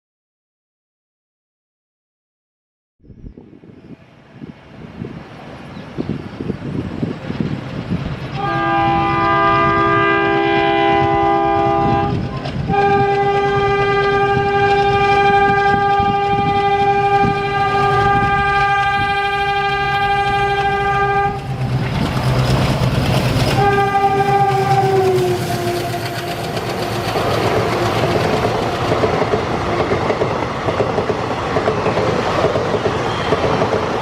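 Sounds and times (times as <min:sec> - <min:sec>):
locomotive horn blasts: 0:08.3 - 0:21.5, 0:23.5 - 0:30.0.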